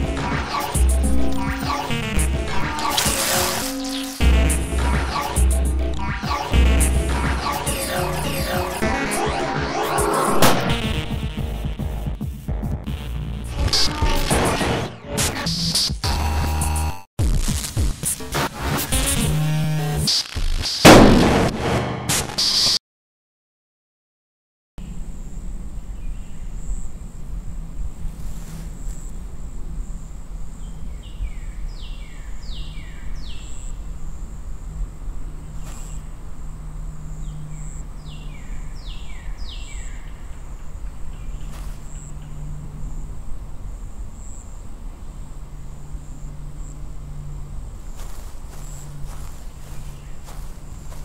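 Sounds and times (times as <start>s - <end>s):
high insect-like whine: 0.6s - 4.3s, 31.8s - 51.0s.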